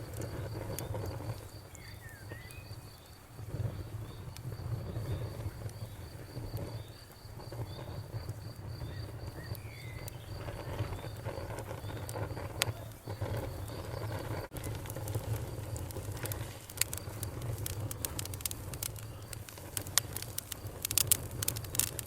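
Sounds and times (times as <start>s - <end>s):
bonfire crackling and popping: 0.0s - 22.0s
crickets chirping: 0.0s - 22.0s.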